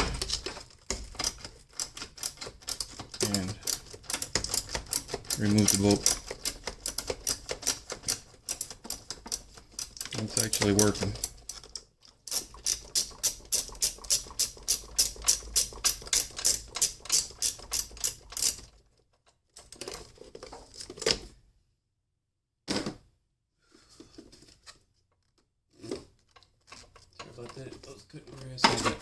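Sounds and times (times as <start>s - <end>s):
socket ratchet clicking: 12.3s - 18.6s.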